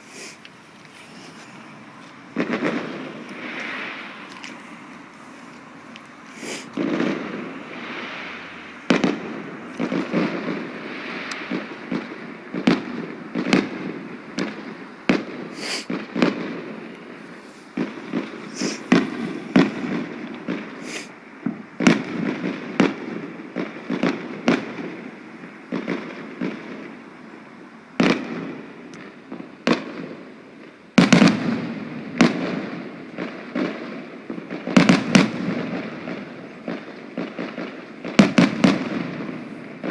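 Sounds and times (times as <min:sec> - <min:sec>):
firework shells bursting and crackling: 0:00.0 - 0:27.3, 0:28.0 - 0:39.9
loud firework bang: 0:02.4 - 0:04.3, 0:06.4 - 0:16.7, 0:17.7 - 0:24.9.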